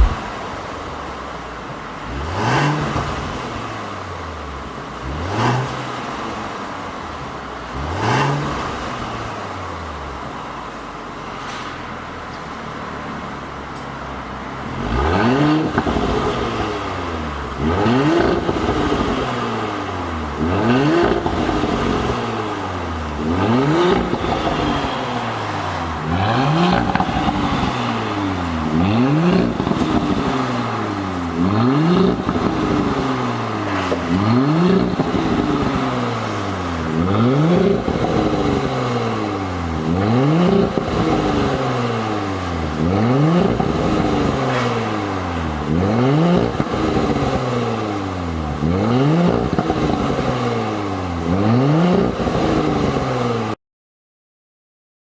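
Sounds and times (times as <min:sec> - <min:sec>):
exhaust crackling pops: 0:00.0 - 0:00.6, 0:14.9 - 0:19.6, 0:20.3 - 0:39.1, 0:39.8 - 0:41.9, 0:42.8 - 0:47.6, 0:48.8 - 0:50.5
car engine revving: 0:00.0 - 0:01.2, 0:01.9 - 0:10.7, 0:14.2 - 0:53.6.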